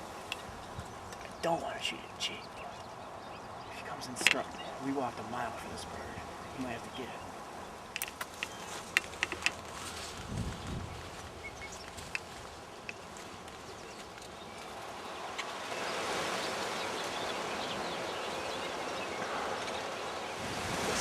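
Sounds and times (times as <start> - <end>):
faint bird chirps: 0.0 - 9.0
wind blowing through trees: 0.0 - 21.0.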